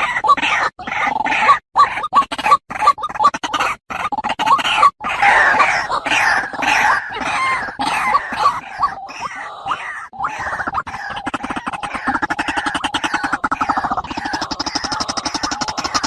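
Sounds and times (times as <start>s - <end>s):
waterhen calling: 4.8s - 16.0s.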